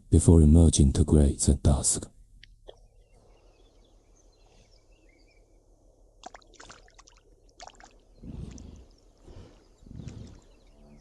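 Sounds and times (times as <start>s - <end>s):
faint bird chirps: 2.6s - 6.0s, 7.3s - 11.0s
small water splashes: 6.2s - 8.6s.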